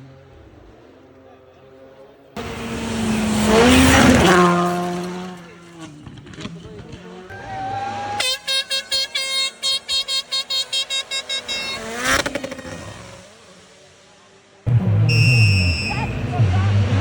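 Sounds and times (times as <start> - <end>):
vehicle passing: 0.0 - 17.0
horn blasts: 2.4 - 6.0, 7.3 - 13.6, 14.7 - 17.0.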